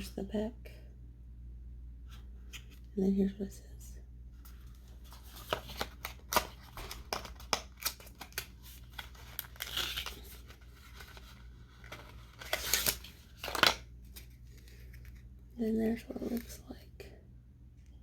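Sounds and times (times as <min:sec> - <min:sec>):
packaging rustling: 0:04.6 - 0:15.3.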